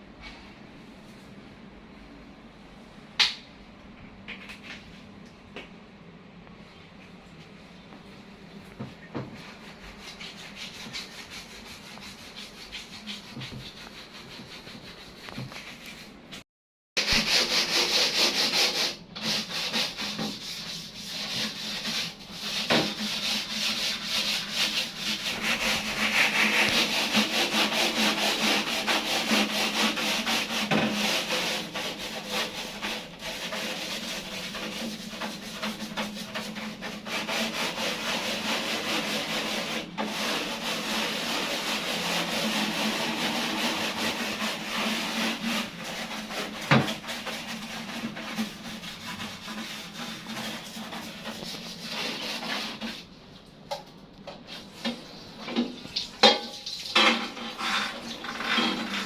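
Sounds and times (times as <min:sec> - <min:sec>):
brush scrubbing hard surface: 0:09.2 - 0:16.4, 0:17.0 - 0:53.2, 0:56.8 - 0:59.0.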